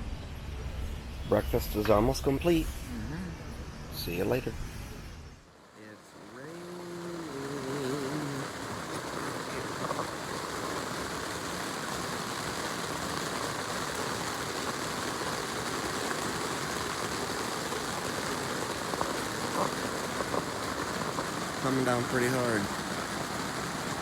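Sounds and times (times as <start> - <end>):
heavy rain on a tent: 5.4 - 24.0.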